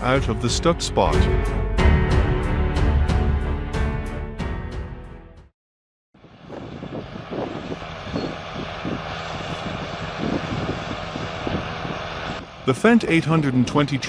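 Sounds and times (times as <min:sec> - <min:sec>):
heavy diesel machinery running: 0:06.2 - 0:14.0.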